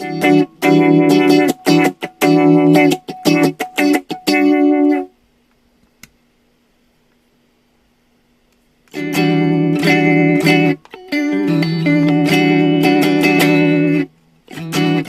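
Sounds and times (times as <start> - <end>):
electric guitar strumming chords: 0.0 - 5.1, 8.9 - 15.0
faint amp hum: 0.0 - 15.0
click: 5.5 - 6.2, 8.5 - 9.0.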